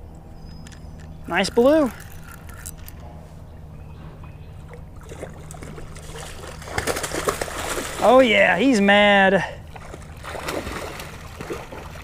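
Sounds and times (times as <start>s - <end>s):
creek water running: 4.6s - 12.0s
small splashes and clicks: 5.0s - 8.0s.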